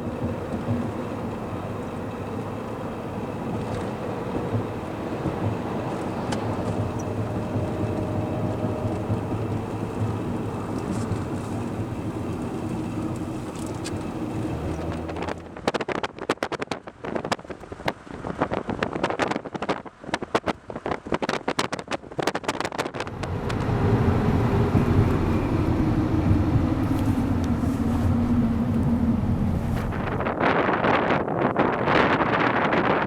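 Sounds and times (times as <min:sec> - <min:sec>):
low hum: 0:00.0 - 0:15.6, 0:23.0 - 0:30.5
strong wind rushing: 0:00.0 - 0:33.0
wind gusts buffeting microphone: 0:00.0 - 0:33.0.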